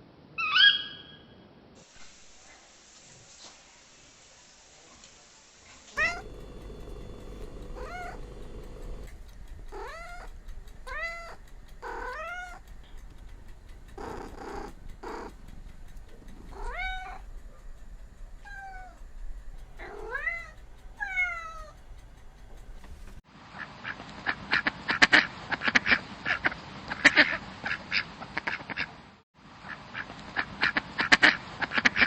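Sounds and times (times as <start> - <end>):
cat meowing: 6.0 - 9.0, 9.7 - 12.6
breathy noise: 6.0 - 17.2.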